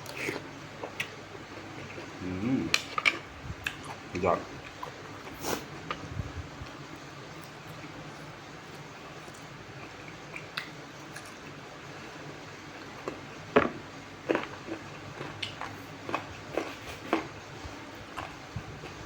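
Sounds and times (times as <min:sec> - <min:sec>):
person chewing crunchy food: 0:00.0 - 0:04.0, 0:12.7 - 0:13.4, 0:14.2 - 0:19.0
background hiss: 0:05.1 - 0:14.3.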